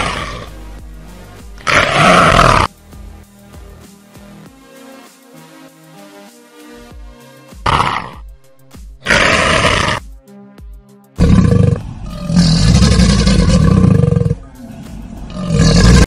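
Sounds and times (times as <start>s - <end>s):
rough animal calls: 0.0s - 0.6s, 1.6s - 2.7s, 9.0s - 10.0s, 11.2s - 16.0s
background music with beat: 0.0s - 12.1s.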